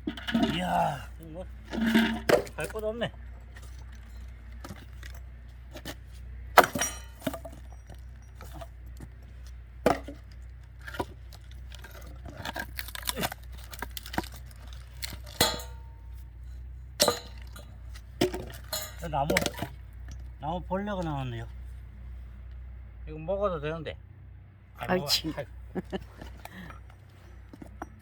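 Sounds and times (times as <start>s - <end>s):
axe splitting firewood: 0.0s - 9.2s, 9.8s - 16.2s, 16.9s - 19.8s.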